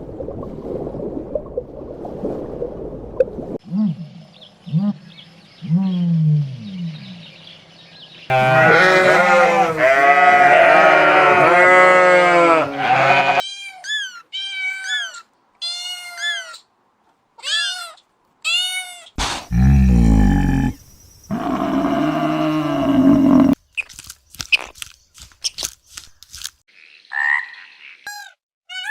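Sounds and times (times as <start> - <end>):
goats or sheep bleating: 8.3 - 13.4
loud deep animal call: 19.5 - 23.6
low animal calls: 19.5 - 23.6.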